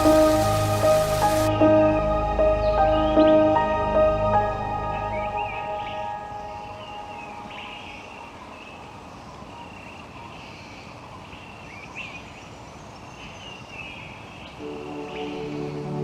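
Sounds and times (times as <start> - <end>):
steady background hiss: 0.0 - 1.6, 5.5 - 16.0
birds chirping: 0.0 - 16.0.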